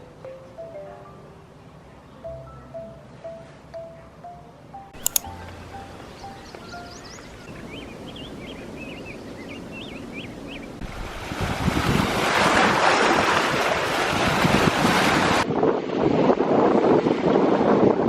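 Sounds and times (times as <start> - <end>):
faint high chirps: 2.1 - 10.7
wind buffeting microphone: 5.4 - 18.0
surf breaking on beach: 10.8 - 17.2.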